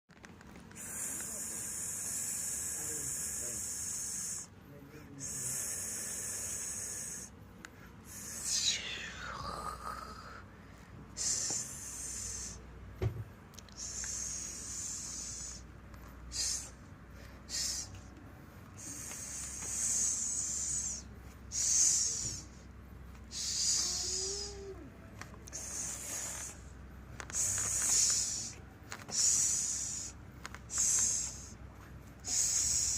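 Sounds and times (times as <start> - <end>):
cat hissing: 18.8 - 22.6, 23.3 - 24.9, 25.5 - 26.7, 27.3 - 30.1, 30.7 - 31.6, 32.2 - 32.9.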